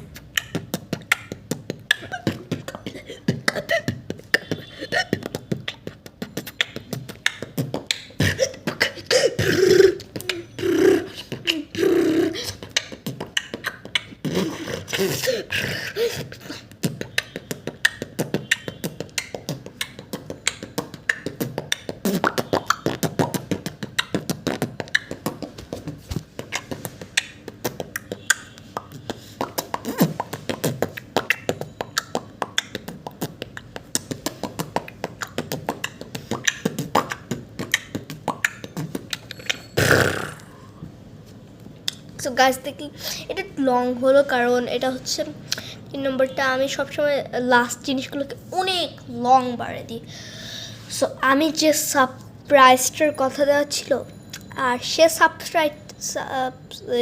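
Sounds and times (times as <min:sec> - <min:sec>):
person beatboxing: 0:00.0 - 0:40.8.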